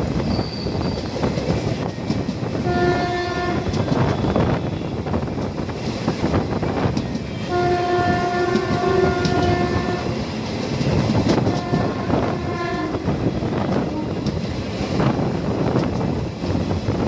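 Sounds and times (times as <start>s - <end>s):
train wheels clattering over joints: 0.2s - 2.6s, 8.3s - 12.1s
locomotive horn blasts: 2.6s - 4.9s, 7.4s - 10.1s, 11.5s - 13.1s.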